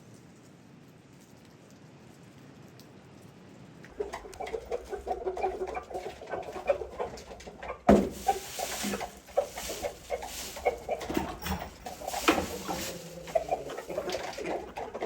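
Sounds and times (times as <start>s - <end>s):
chickens clucking: 3.9s - 15.0s.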